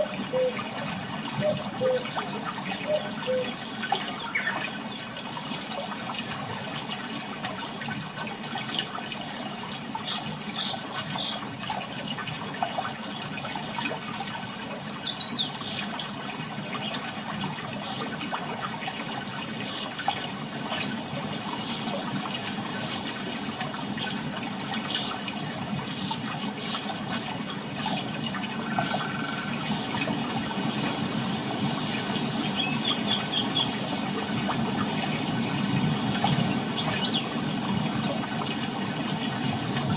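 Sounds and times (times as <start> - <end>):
birds chirping: 0.0 - 4.6, 21.6 - 37.4
water washing on shore: 15.8 - 39.9.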